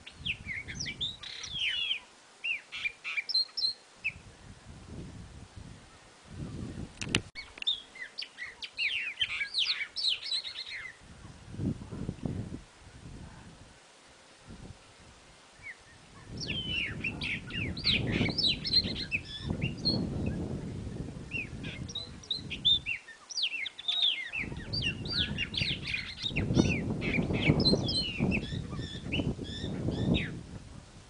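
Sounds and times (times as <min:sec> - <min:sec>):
birds chirping and whistling: 0:00.0 - 0:04.2, 0:07.4 - 0:11.0, 0:15.6 - 0:20.5, 0:21.3 - 0:30.4
wren singing: 0:00.0 - 0:04.3, 0:07.4 - 0:11.0, 0:15.6 - 0:30.4.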